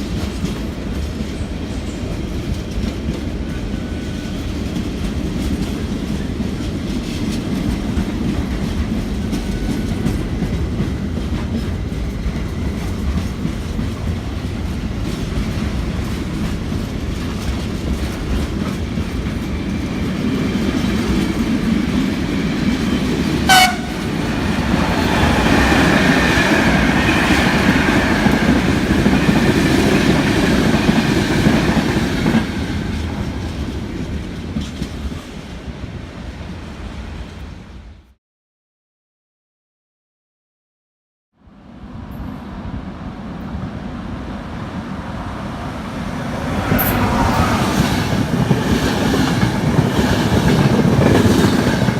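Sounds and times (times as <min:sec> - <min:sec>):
train rumbling and wheel clatter: 0:00.0 - 0:38.2, 0:41.6 - 0:51.9
short train horn toot: 0:23.5 - 0:24.0.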